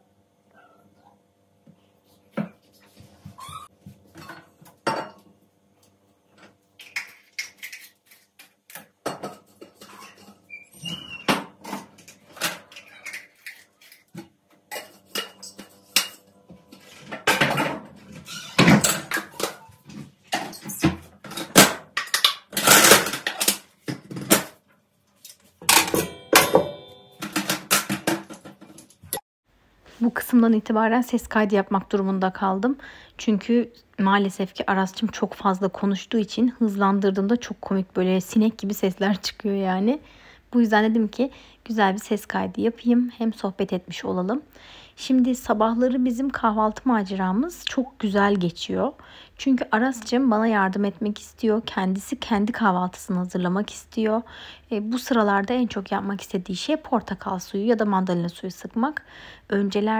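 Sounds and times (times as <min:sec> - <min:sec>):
dishes and cutlery clattering: 0:09.0 - 0:10.5, 0:14.7 - 0:19.7, 0:25.6 - 0:29.2.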